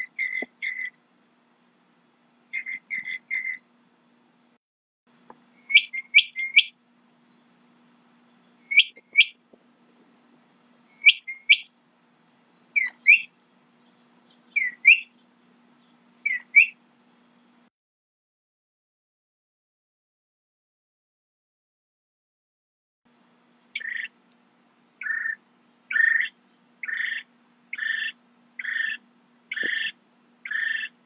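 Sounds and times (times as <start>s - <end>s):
bird calling: 0.0s - 1.0s, 1.8s - 3.7s, 5.6s - 7.5s, 8.3s - 9.5s, 10.8s - 11.8s, 12.7s - 16.8s, 23.7s - 24.2s, 25.0s - 31.0s.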